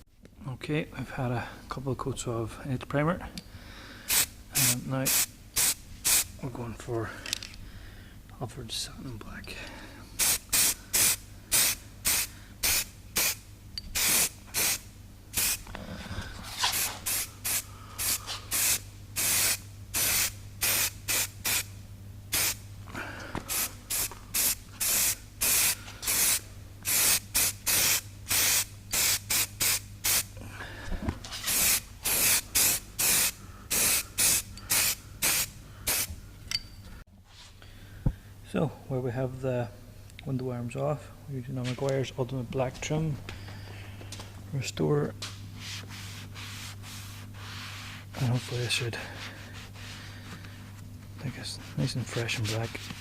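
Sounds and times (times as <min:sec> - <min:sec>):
spray paint can hissing: 0:10.2 - 0:13.4, 0:14.0 - 0:14.8, 0:15.4 - 0:15.6, 0:16.7 - 0:21.7, 0:23.5 - 0:30.3, 0:31.5 - 0:36.1.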